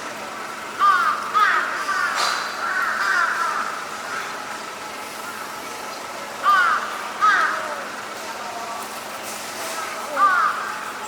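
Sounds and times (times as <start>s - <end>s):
steady background noise: 0.0s - 11.0s
crows cawing: 0.8s - 4.4s, 6.4s - 8.0s, 10.1s - 10.8s.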